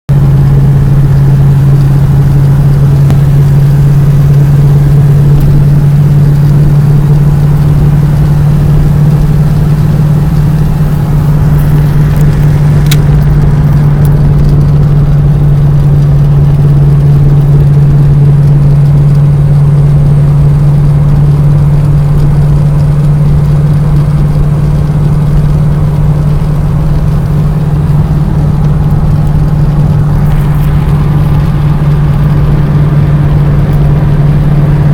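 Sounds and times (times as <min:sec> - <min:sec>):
vehicle engine running: 0:00.0 - 0:34.9
sharp click: 0:11.6 - 0:13.4.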